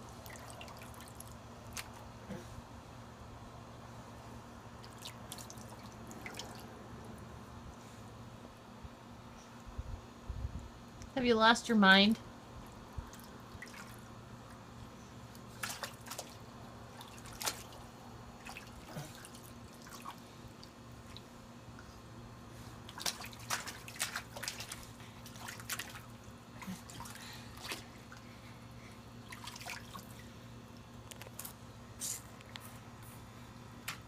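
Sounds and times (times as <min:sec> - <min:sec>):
steady low hum: 0:00.0 - 0:34.0
water dripping and splashing: 0:00.2 - 0:02.0, 0:04.8 - 0:06.7, 0:13.1 - 0:14.0, 0:15.3 - 0:17.8, 0:18.4 - 0:21.3, 0:22.9 - 0:28.2, 0:29.2 - 0:30.3.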